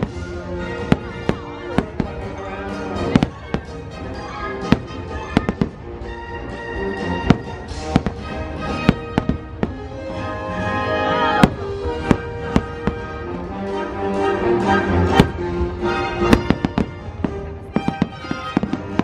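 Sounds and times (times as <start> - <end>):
fireworks bangs: 0.0 - 5.9, 7.0 - 10.3, 11.2 - 13.4, 15.0 - 19.0
soundtrack music: 0.0 - 19.0.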